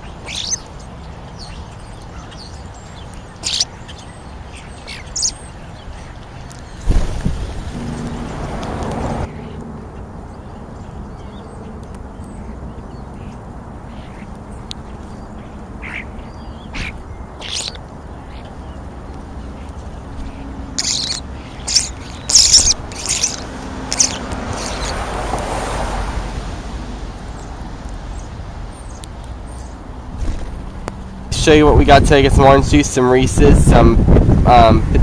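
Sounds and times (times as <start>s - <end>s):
birds calling: 0.0s - 26.0s, 27.2s - 33.8s.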